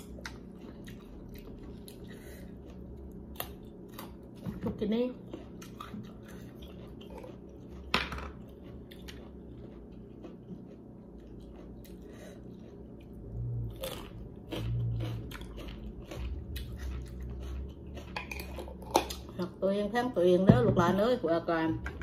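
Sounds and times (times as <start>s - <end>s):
chewing crisp raw vegetables: 0.0s - 19.6s.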